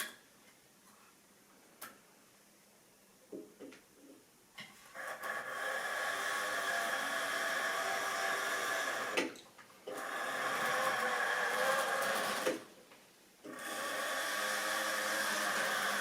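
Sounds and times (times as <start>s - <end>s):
model train motor whirring: 9.9s - 12.6s, 13.5s - 16.0s.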